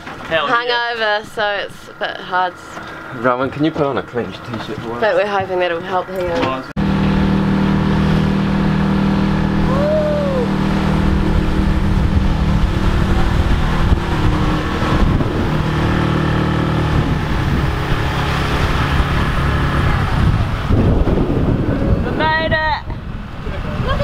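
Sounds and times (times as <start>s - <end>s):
vehicle engine rumbling: 0.0s - 24.0s
rising and falling tone: 6.8s - 22.0s.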